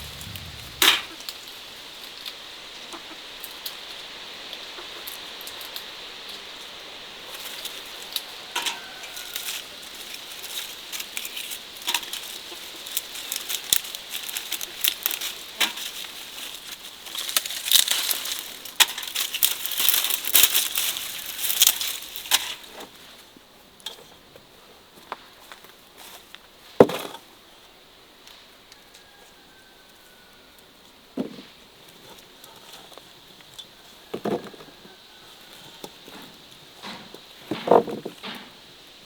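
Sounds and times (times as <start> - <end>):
crackling and rustling with clicks: 9.4 - 22.6.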